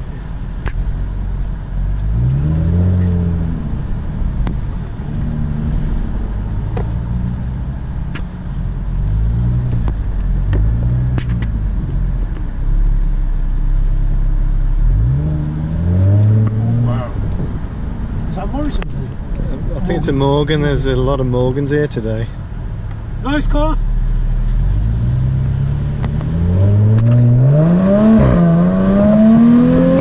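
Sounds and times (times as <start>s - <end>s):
car engine accelerating: 0.0s - 30.0s
steady low rumble: 0.0s - 30.0s.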